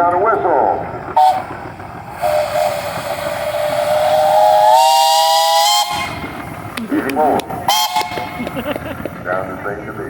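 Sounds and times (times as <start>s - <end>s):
steam whistle blast: 1.2s - 1.5s, 2.2s - 6.3s, 7.7s - 8.3s
steam hiss: 2.1s - 6.3s.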